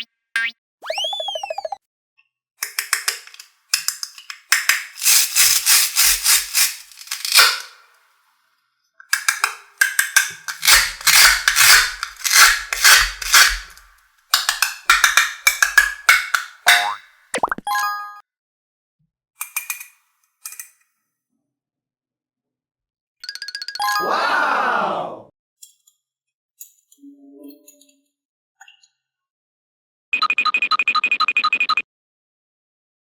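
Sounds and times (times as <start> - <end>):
fast rattling clicks: 2.6 - 7.8, 9.2 - 16.8.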